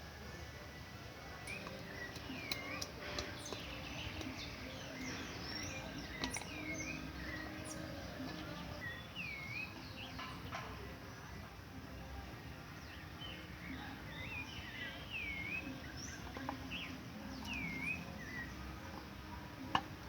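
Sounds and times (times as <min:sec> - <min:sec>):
birds whistling: 0:01.3 - 0:10.6, 0:12.8 - 0:19.1.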